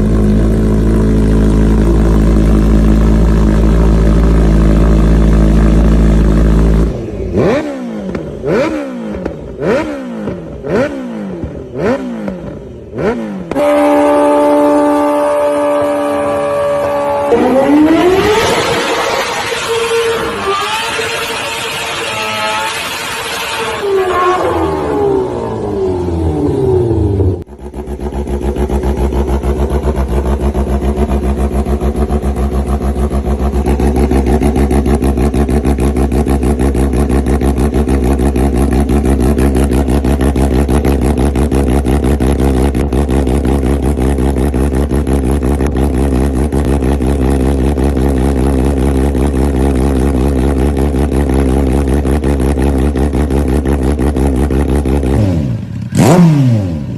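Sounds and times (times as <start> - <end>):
motorcycle engine idling: 0.0 - 17.8, 25.2 - 56.0
motorcycle engine revving down: 0.0 - 56.9.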